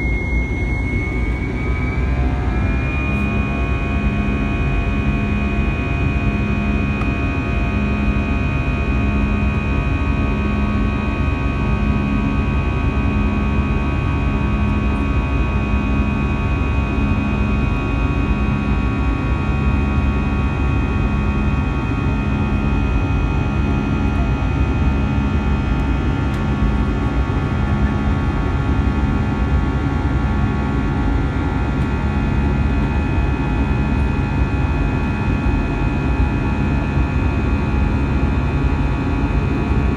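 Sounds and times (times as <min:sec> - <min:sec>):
engine whining tones: 0:00.0 - 0:28.9
jet engine drone in cabin: 0:00.0 - 0:39.9
low pulsing hum: 0:00.0 - 0:39.9.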